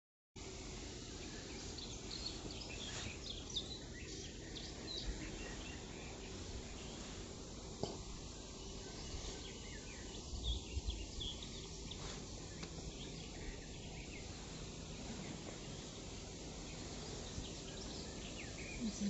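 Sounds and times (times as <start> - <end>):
steady outdoor hiss: 0.4 - 19.0.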